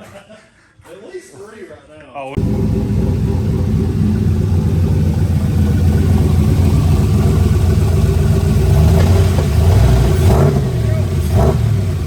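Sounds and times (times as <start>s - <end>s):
car engine running loud: 2.4s - 12.0s.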